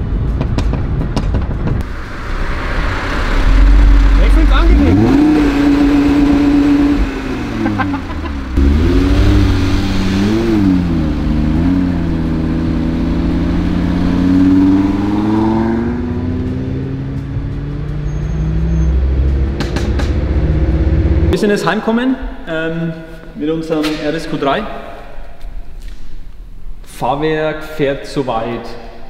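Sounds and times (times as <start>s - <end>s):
car engine revving: 1.8s - 21.4s.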